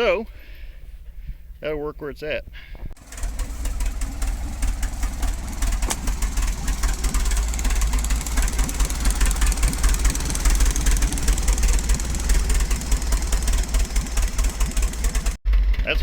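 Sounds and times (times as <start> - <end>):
tractor engine chugging: 2.9 - 16.0.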